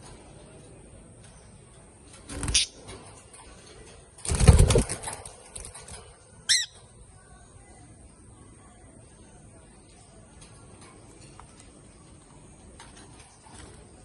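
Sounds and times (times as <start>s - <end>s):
bird flapping wings: 2.1s - 6.2s.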